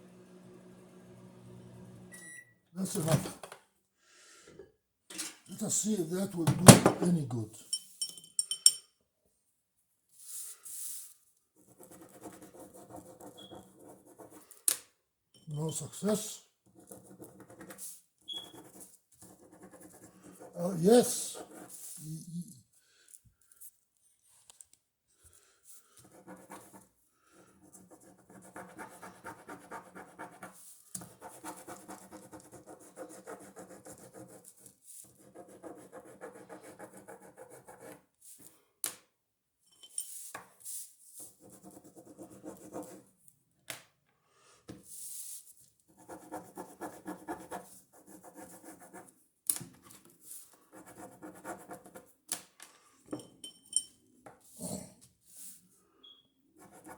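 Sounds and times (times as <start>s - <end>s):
pen scribbling on paper: 11.6s - 14.4s, 16.8s - 17.8s, 18.4s - 22.0s, 26.0s - 26.9s, 27.5s - 38.0s, 41.4s - 43.0s, 45.9s - 49.1s, 50.7s - 52.0s, 56.6s - 56.9s.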